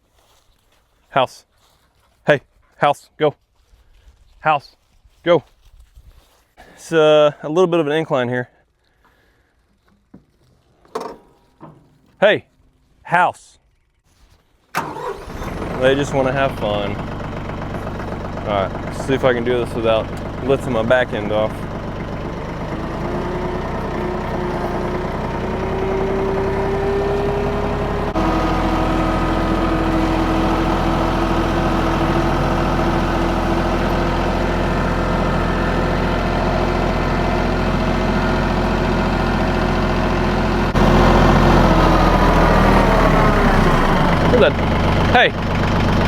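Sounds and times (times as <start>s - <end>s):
tractor diesel engine under load: 14.7s - 46.0s.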